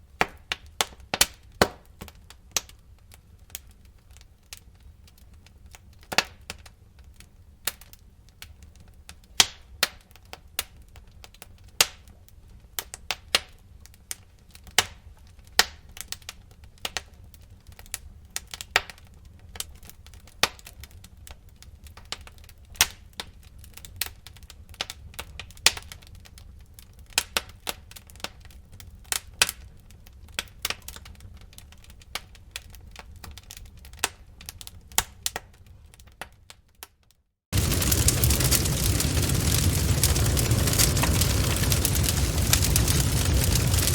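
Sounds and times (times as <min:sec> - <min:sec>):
wood crackling and popping: 0:00.1 - 0:36.9, 0:37.5 - 0:43.9
low rumble of flames: 0:37.5 - 0:43.9.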